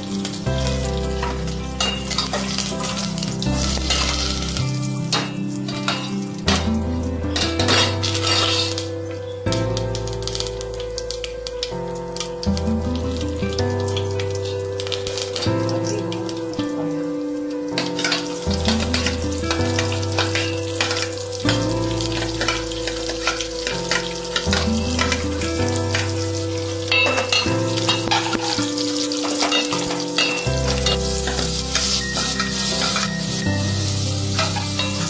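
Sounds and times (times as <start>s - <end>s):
background music: 0.0s - 35.0s
food sizzling in oil: 0.0s - 35.0s
spoon scraping a steel pan: 7.7s - 8.8s.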